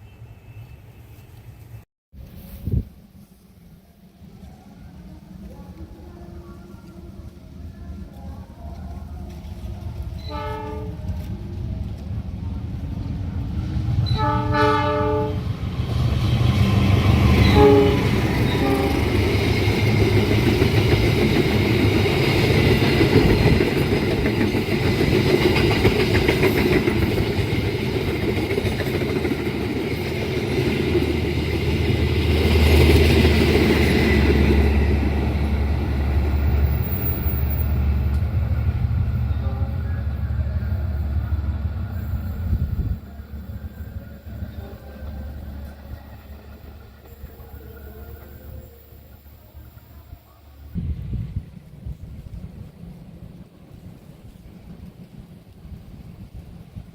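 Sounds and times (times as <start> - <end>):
train passing with rumble: 0.0 - 56.9
train horn blasts: 10.2 - 11.3, 14.0 - 15.6, 17.2 - 19.4, 39.2 - 41.0.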